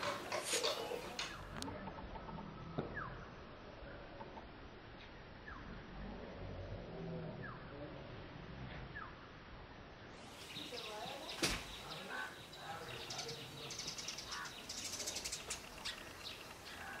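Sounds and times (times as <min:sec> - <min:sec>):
small birds chirping: 0:10.1 - 0:17.0
rapid high bird trill: 0:10.2 - 0:17.0.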